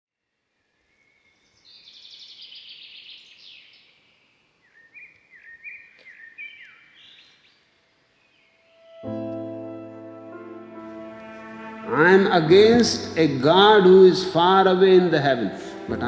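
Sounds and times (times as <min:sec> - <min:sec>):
songbird trilling: 0:04.6 - 0:07.5
songbird whistled notes: 0:04.7 - 0:07.4.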